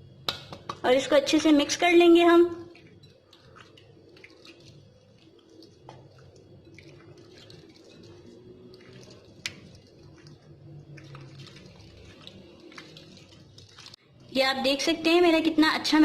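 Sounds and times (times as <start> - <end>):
chicken squelching in marinade: 2.7 - 14.3.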